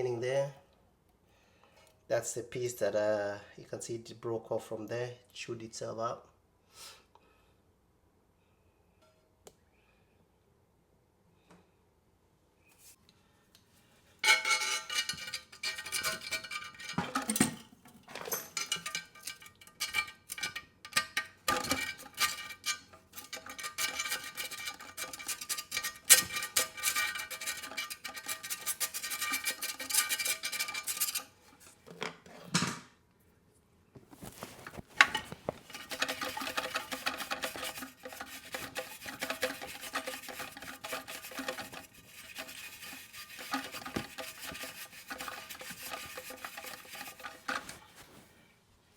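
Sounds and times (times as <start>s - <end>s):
wire brush scraping metal: 14.2s - 17.6s, 18.5s - 31.8s, 34.2s - 48.2s.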